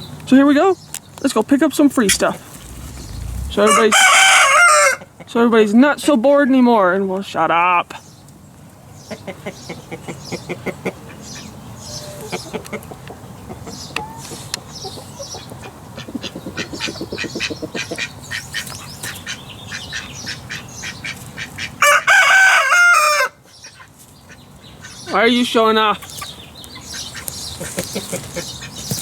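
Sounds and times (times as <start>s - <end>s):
chickens clucking: 9.1s - 22.0s, 26.0s - 29.0s.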